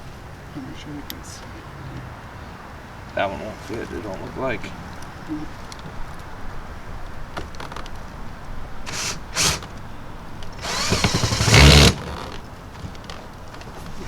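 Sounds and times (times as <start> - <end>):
cordless screw gun driving screw: 8.9 - 9.7, 10.6 - 12.4.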